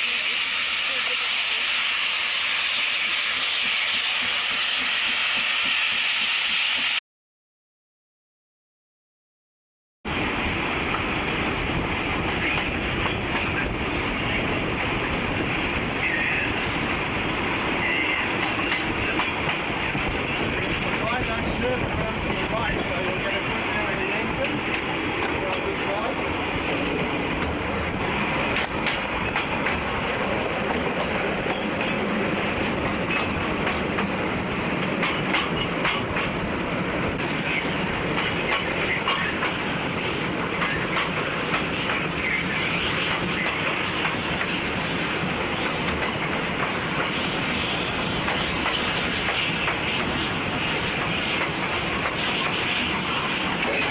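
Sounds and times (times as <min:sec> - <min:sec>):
train wheels clattering on rails: 0:03.1 - 0:07.0, 0:12.2 - 0:13.8, 0:18.0 - 0:53.9.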